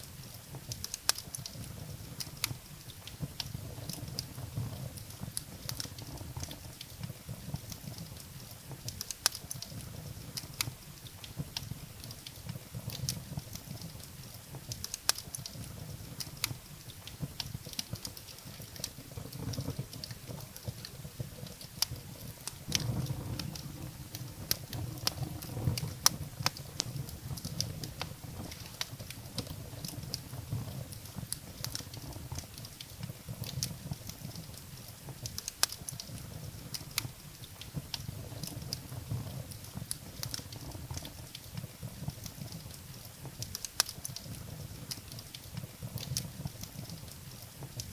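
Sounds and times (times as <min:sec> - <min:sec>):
firewood crackling and popping: 0:00.0 - 0:47.9
low rumble of flames: 0:00.0 - 0:47.9.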